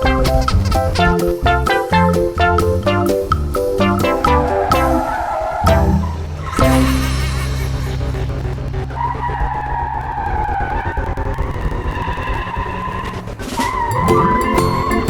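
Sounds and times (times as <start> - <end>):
race car engine humming: 2.6 - 15.0
tire squeal: 4.4 - 14.0.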